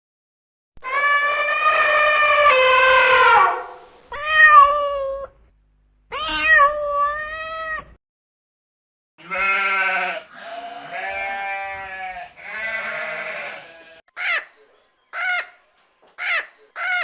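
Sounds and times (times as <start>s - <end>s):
cat meowing: 4.1s - 5.3s, 6.1s - 8.0s.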